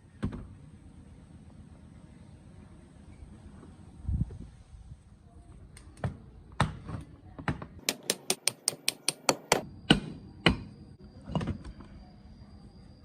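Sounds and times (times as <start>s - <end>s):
light hammer taps: 7.8s - 9.6s
hammer striking metal: 7.8s - 10.7s.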